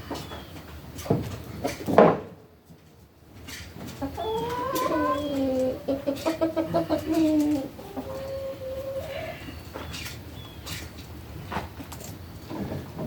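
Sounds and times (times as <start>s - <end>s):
chickens squawking and clucking: 3.7s - 10.9s.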